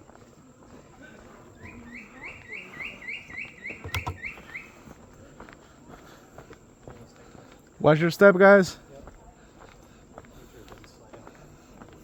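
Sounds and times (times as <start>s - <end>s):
sharp knocks: 3.9s - 4.2s.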